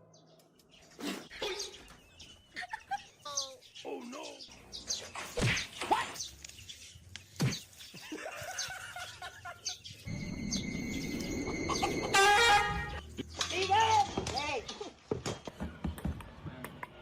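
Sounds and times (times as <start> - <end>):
bird chirps: 0.0 - 13.5.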